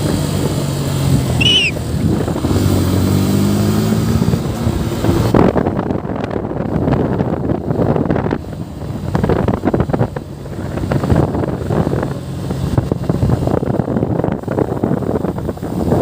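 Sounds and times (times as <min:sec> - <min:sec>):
wind buffeting microphone: 0:00.0 - 0:03.3, 0:03.9 - 0:16.0.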